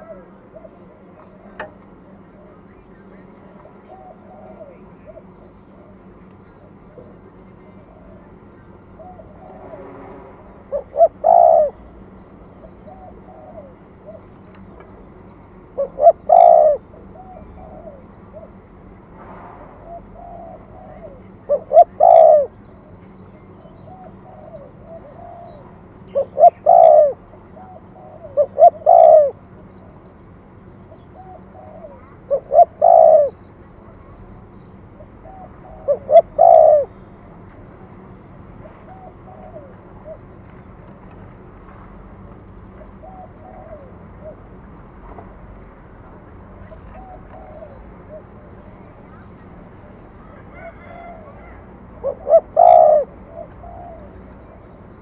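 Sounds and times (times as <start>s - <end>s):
dove cooing: 0.0s - 9.7s, 10.7s - 18.8s, 19.8s - 22.6s, 23.6s - 30.1s, 30.9s - 34.0s, 34.9s - 37.2s, 37.8s - 40.4s, 42.6s - 44.6s, 46.6s - 54.8s.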